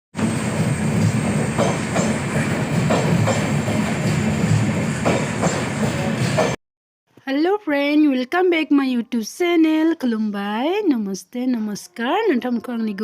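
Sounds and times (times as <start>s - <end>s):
train rumbling on rails: 0.2s - 6.6s.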